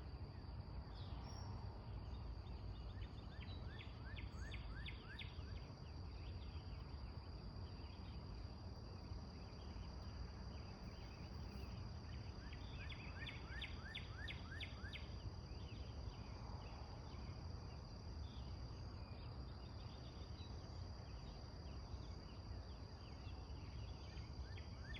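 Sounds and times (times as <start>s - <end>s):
high insect drone: 0.1s - 24.9s
faint bird chirps: 0.3s - 8.2s, 9.4s - 17.3s.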